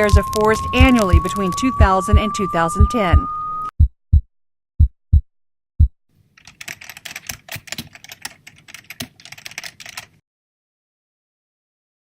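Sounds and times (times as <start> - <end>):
rapid keyboard typing: 0.0 - 3.0, 6.4 - 10.2.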